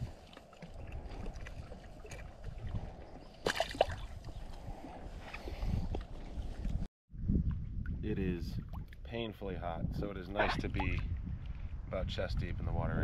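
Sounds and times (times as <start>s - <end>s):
water sloshing around wading person: 0.0s - 6.9s.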